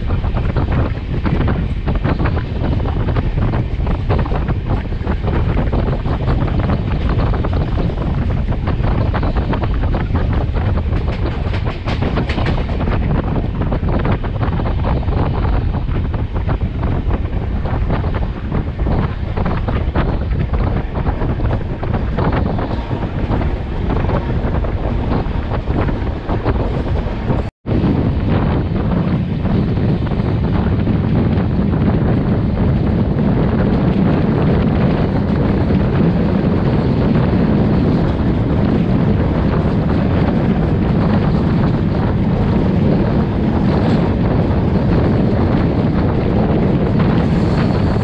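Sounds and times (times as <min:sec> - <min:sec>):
steady train rumble: 0:00.0 - 0:48.0
wind buffeting microphone: 0:00.0 - 0:48.0
train wheels clattering over rail joints: 0:00.1 - 0:27.5.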